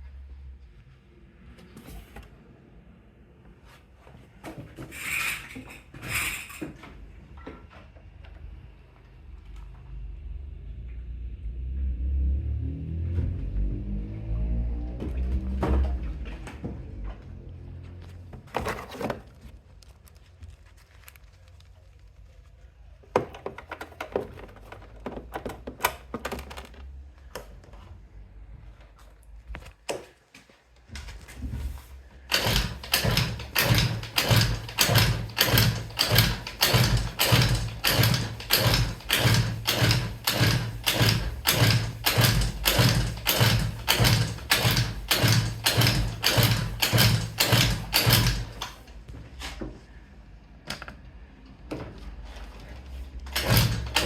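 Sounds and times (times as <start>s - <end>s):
heavy mechanical knocks: 32.3s - 48.9s, 53.3s - 54.0s.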